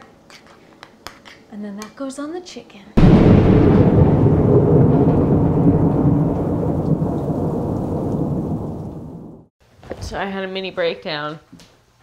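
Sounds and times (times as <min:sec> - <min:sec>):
rolling thunder rumble: 0:03.0 - 0:09.5.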